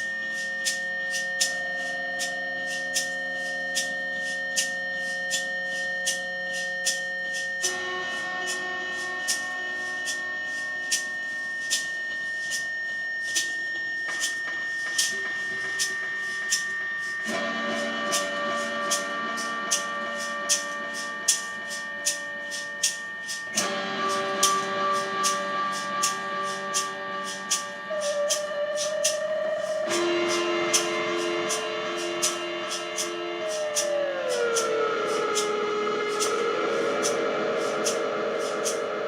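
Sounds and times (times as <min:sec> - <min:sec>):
electronic droning tones: 0:00.0 - 0:39.0
sharp electronic clicks: 0:21.3 - 0:39.0.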